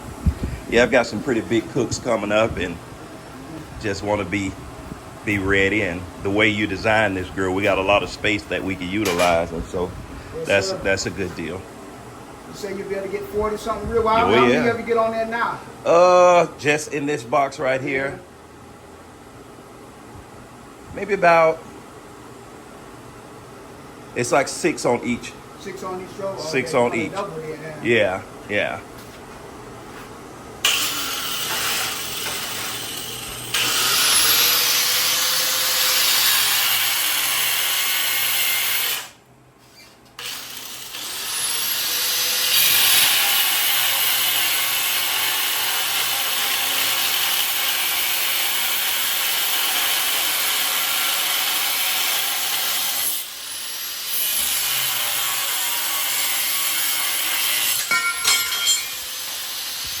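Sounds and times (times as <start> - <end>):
power tool grinding steel: 30.6 - 39.2, 40.2 - 60.0.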